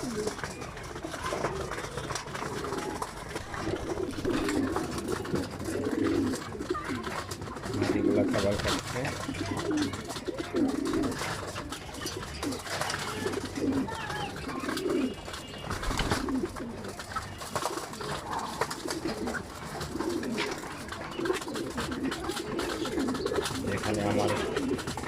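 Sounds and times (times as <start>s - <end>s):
pigeons cooing: 0.0s - 25.0s.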